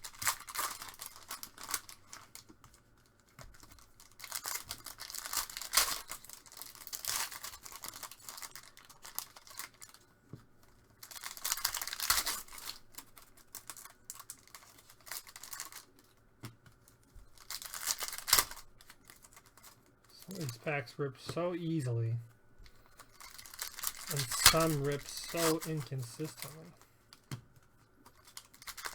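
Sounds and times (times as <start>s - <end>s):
wrappers being ripped open: 0.0s - 10.0s, 11.0s - 16.1s, 17.3s - 20.5s, 23.0s - 26.6s, 28.1s - 28.9s.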